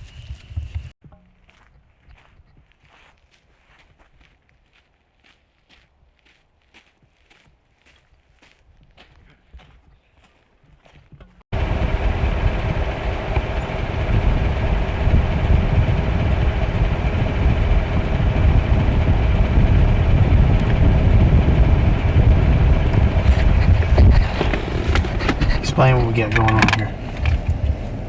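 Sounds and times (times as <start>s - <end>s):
truck rumbling from inside cab: 11.5s - 28.0s
faint footsteps: 11.9s - 28.0s.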